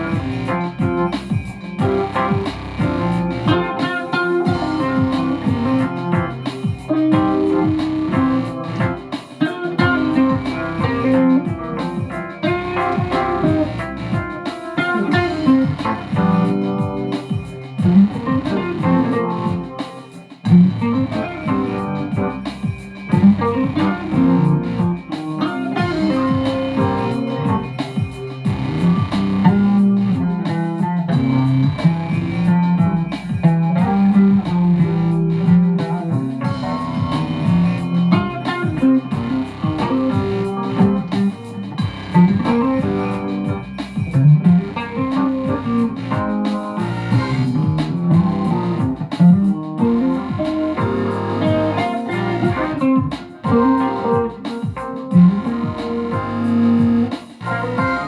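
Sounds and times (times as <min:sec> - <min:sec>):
plucked guitar notes: 0:00.0 - 0:19.8, 0:20.4 - 0:58.0
low sliding guitar notes: 0:44.2 - 0:54.4.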